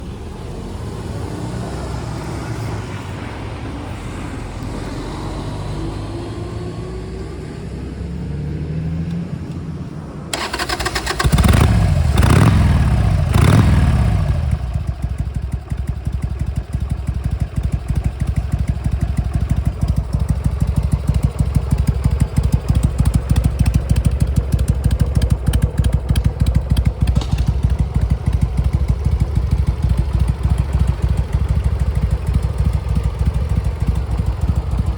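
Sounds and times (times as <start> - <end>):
motorcycle engine revving and idling: 10.3 - 34.9.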